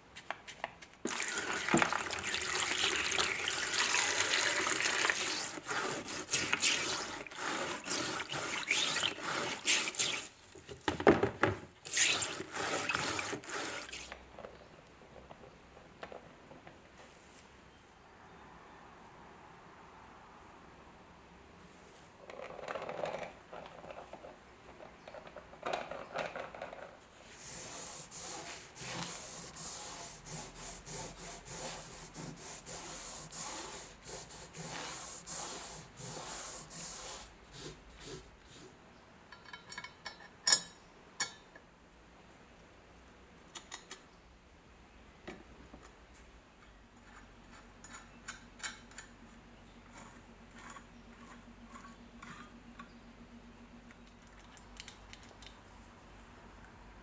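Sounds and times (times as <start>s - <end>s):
abrasive rubbing on steel: 27.3s - 38.8s.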